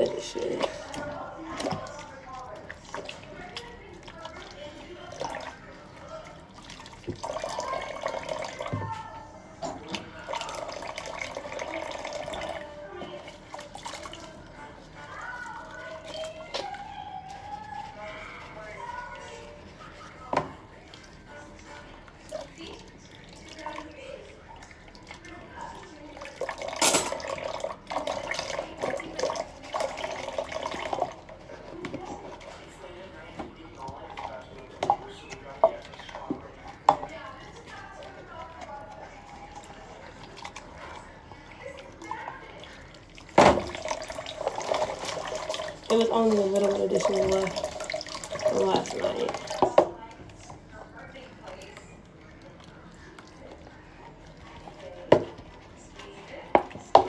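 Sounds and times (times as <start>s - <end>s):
water splashing over dishes: 0.0s - 57.0s
dishes knocking: 26.8s - 27.2s
tap running into sink: 43.3s - 44.0s
tap running into a sink: 43.3s - 45.4s.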